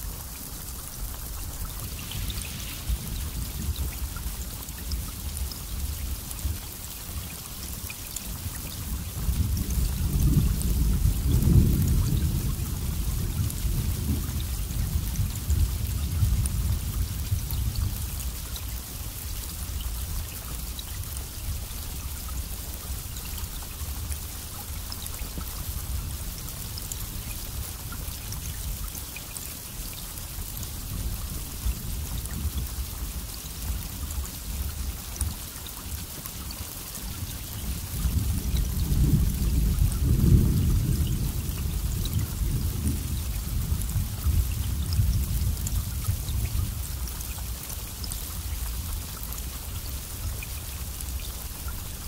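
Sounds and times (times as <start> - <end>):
rain hissing: 0.0 - 52.0
raindrop ticks: 0.1 - 52.0
low rolling thunder: 9.2 - 18.2, 37.7 - 47.1.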